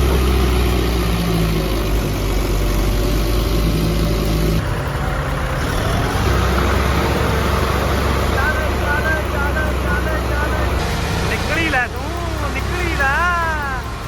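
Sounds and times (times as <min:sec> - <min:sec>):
tractor diesel engines running: 0:00.0 - 0:14.0.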